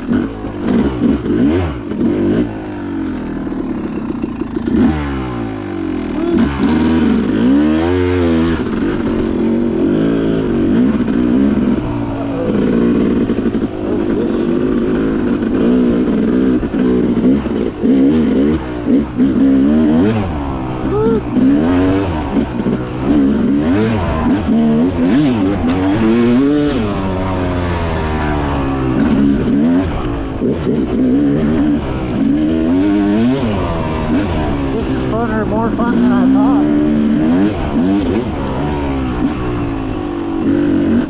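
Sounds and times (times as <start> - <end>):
dirt bike engine revving: 0.0 - 41.0.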